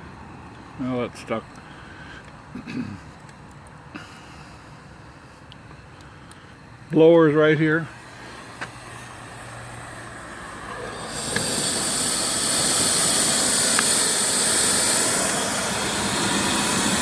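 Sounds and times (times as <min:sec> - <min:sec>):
steam hissing: 0:08.1 - 0:17.0.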